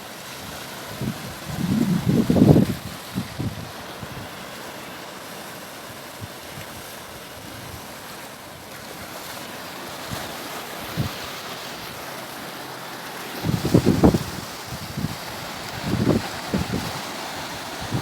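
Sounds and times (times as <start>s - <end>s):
sea surf washing: 0.0s - 18.0s
wind buffeting microphone: 0.9s - 4.3s, 13.4s - 18.0s.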